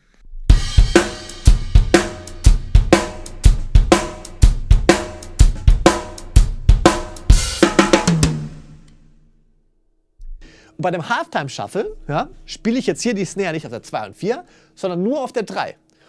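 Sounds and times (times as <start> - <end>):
drum kit shuffle groove: 0.2 - 9.1.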